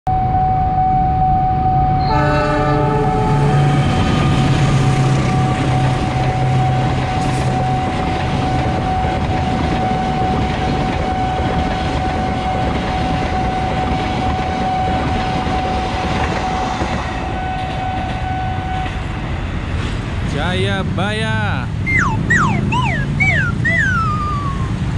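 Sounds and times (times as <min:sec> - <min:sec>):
crossing warning signal tone: 0:00.1 - 0:18.9, 0:21.7 - 0:24.9
locomotive horn blast: 0:02.0 - 0:05.8, 0:10.9 - 0:12.6, 0:17.2 - 0:18.9
train coaches rolling: 0:02.2 - 0:24.9.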